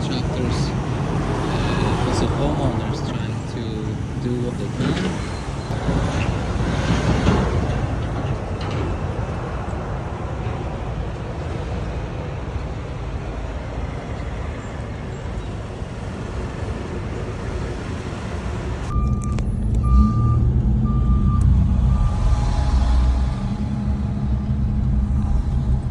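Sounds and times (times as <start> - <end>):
low engine rumble: 0.0 - 25.9
vehicle road noise: 0.0 - 25.9
reversing alarm beeping: 18.9 - 25.9.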